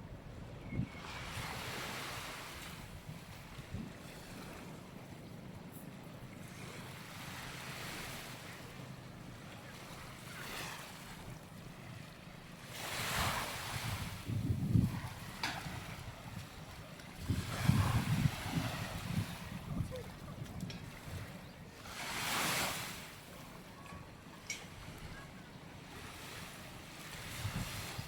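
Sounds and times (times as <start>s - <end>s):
wind buffeting microphone: 0.0s - 5.5s, 12.8s - 21.7s, 26.2s - 28.0s
sea surf washing on beach: 0.9s - 5.0s, 6.4s - 28.0s.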